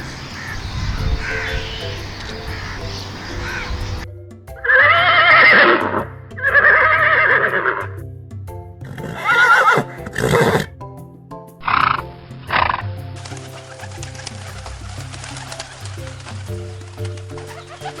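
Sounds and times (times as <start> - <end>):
background music: 0.0 - 18.0
horse whinnying: 9.0 - 10.7.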